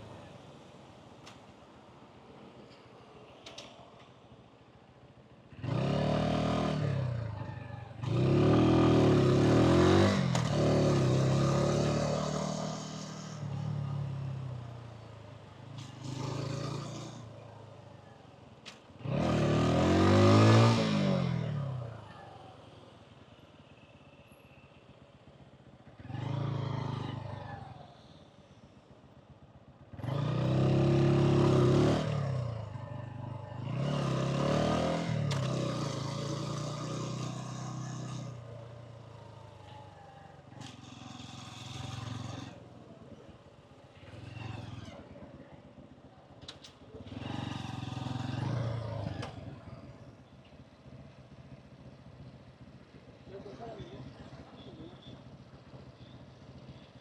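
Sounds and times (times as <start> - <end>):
motorcycle engine accelerating: 26.0 - 27.9, 29.9 - 56.9.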